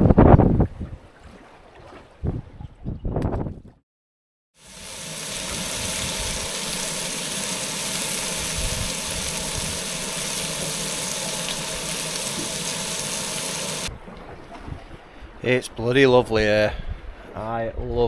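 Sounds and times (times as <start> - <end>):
rush of wind and water: 4.6 - 15.3.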